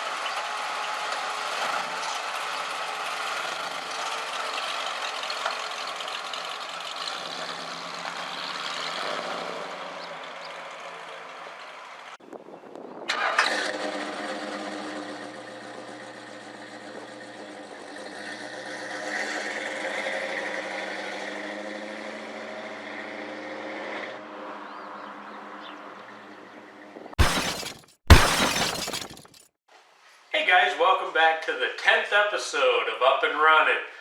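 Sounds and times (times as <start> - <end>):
car engine starting and running: 3.1 - 12.0, 13.1 - 22.0.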